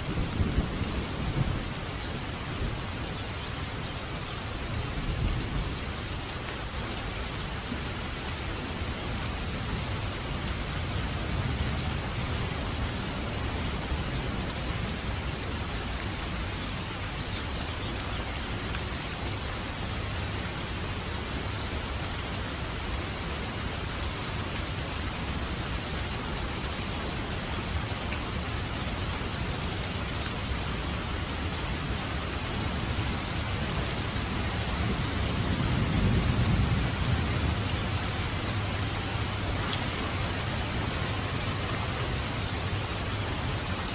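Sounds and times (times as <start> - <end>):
thunder rumble: 0.0 - 2.8, 32.8 - 43.8
rain on a roof: 0.0 - 43.9.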